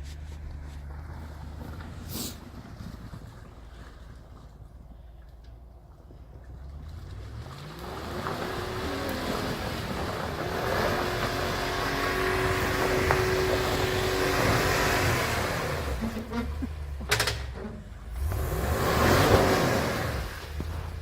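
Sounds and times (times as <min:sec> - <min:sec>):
truck engine revving: 0:06.6 - 0:21.0.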